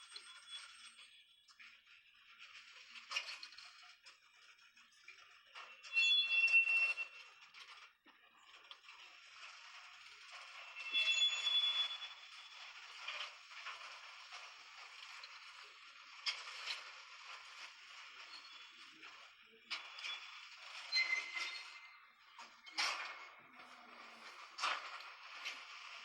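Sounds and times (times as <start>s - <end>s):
high squeal: 10.7s - 12.5s.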